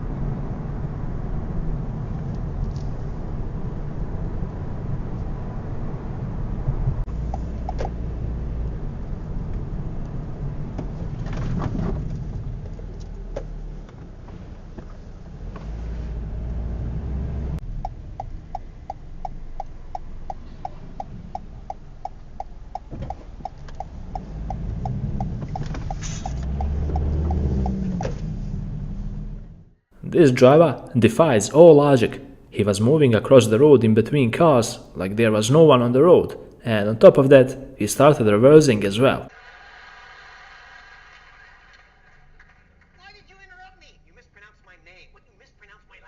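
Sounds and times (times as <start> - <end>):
car engine and road rumble: 0.0 - 39.3
regular ticking: 17.8 - 27.8.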